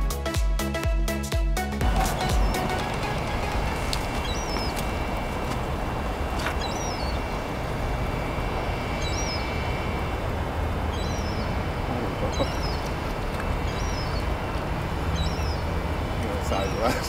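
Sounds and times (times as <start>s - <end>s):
songbird chirping: 1.8s - 16.9s
low outdoor background noise: 1.8s - 17.0s.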